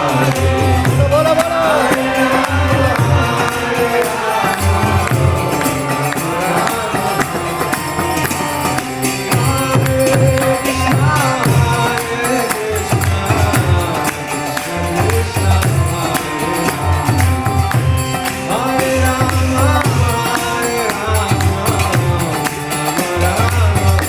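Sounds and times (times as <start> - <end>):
jingling clattering percussion: 0.0 - 24.0.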